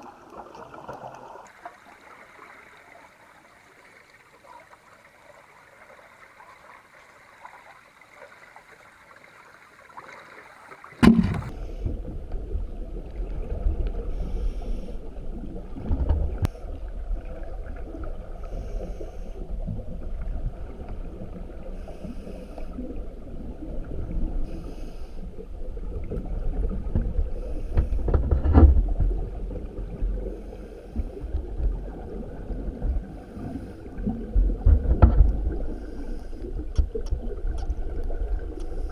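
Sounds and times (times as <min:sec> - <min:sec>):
flowing water hiss: 0:00.0 - 0:12.2, 0:13.3 - 0:17.1, 0:17.9 - 0:28.2, 0:29.6 - 0:38.9
underwater low rumble: 0:11.0 - 0:38.9.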